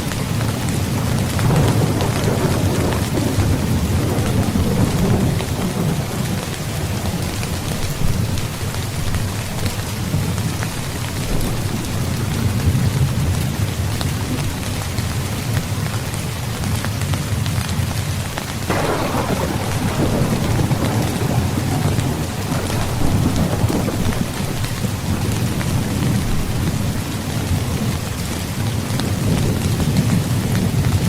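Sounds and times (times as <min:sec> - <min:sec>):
heavy rainfall: 0:00.0 - 0:31.0
low thunder rumble: 0:00.9 - 0:10.4, 0:18.7 - 0:31.0
thunderclap: 0:01.1 - 0:08.4, 0:18.7 - 0:27.9.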